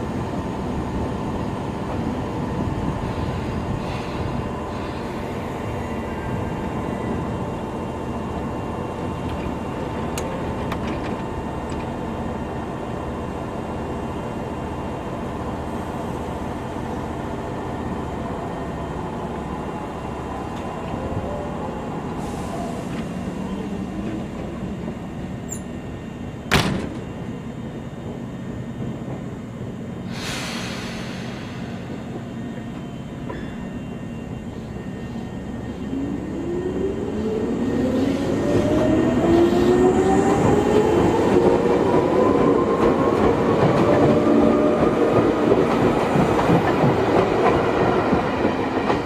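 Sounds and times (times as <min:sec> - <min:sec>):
train equipment humming: 0:00.0 - 0:49.0
air hiss: 0:30.0 - 0:32.2.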